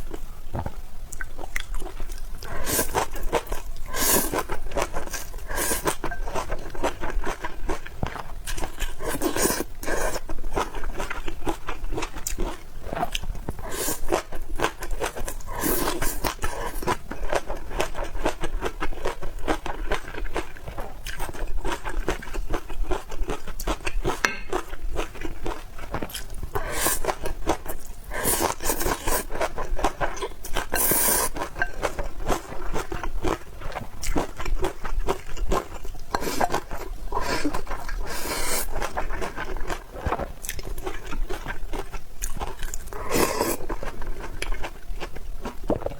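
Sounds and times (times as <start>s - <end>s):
slurps or scrapes: 30.8s - 31.4s, 37.2s - 38.8s.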